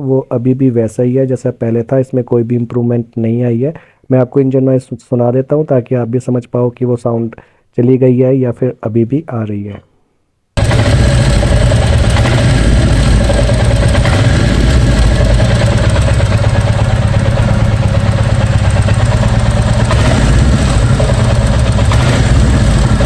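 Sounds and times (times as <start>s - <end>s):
motorcycle engine revving and idling: 10.6s - 23.0s
odd irritating engine noise: 10.6s - 23.0s.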